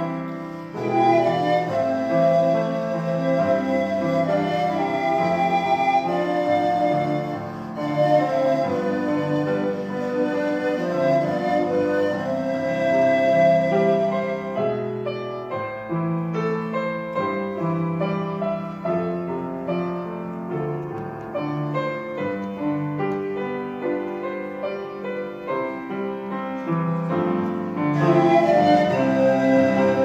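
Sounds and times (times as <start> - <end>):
slow piano hymn: 0.0 - 30.0
sustained panflute note: 28.0 - 30.0.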